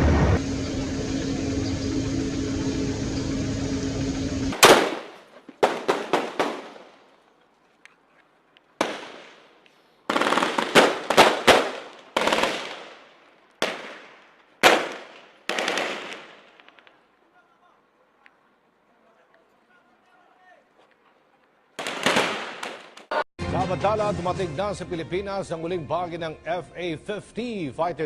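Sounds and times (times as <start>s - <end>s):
steady engine drone: 0.0s - 4.6s
gunshots echoing: 4.5s - 7.1s, 8.8s - 9.5s, 10.1s - 16.9s, 21.8s - 23.1s.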